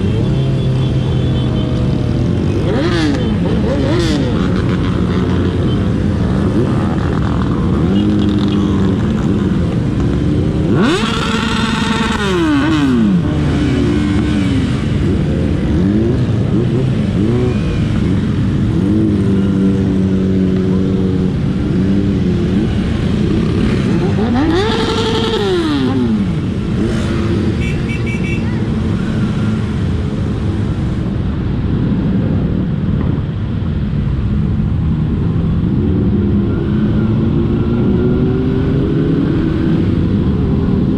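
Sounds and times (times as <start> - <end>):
motorcycle engines rumbling: 0.0 - 40.9.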